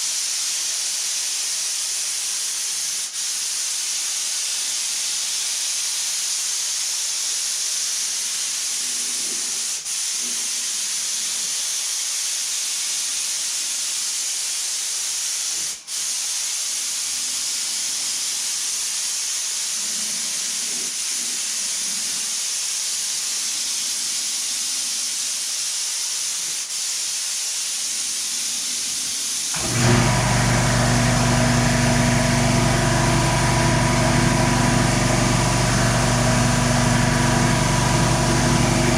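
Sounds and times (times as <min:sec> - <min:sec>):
air tool hissing: 0:00.0 - 0:38.9
engine idling: 0:29.6 - 0:38.9.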